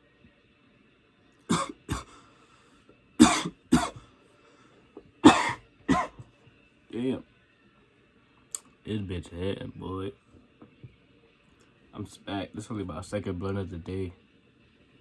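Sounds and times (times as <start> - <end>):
man coughing hard: 1.5 - 2.2, 3.2 - 4.1, 5.2 - 6.2.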